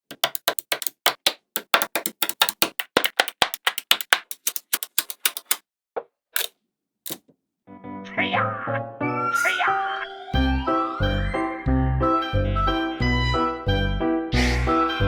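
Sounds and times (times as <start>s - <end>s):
magnetic balls clicking together: 0.0s - 5.6s.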